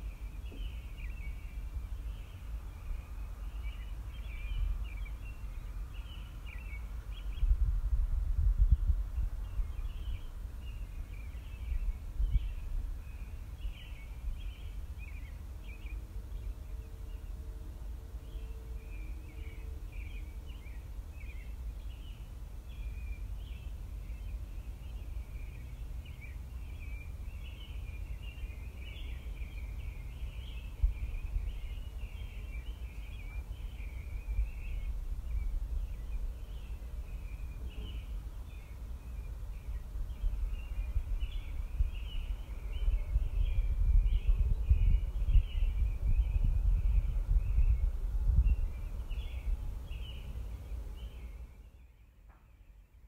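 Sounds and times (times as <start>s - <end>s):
small birds chirping: 0.0s - 17.5s, 18.2s - 53.0s.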